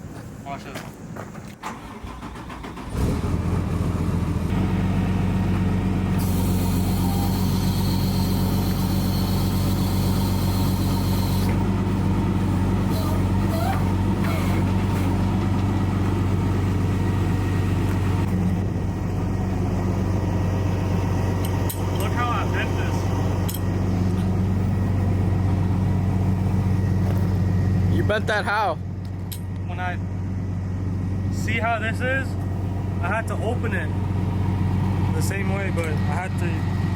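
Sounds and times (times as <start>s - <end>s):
truck engine running: 1.0s - 36.9s
air hissing: 6.1s - 11.6s.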